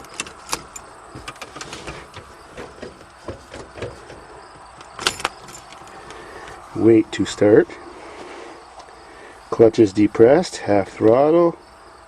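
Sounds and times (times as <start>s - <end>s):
handling clicks and knocks: 0.0s - 6.8s.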